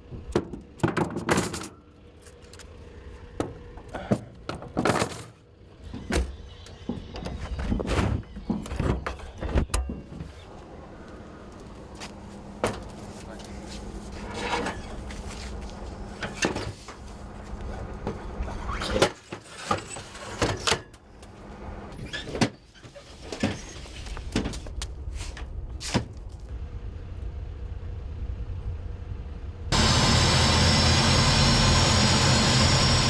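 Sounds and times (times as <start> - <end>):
steady low hum: 26.4 - 33.0.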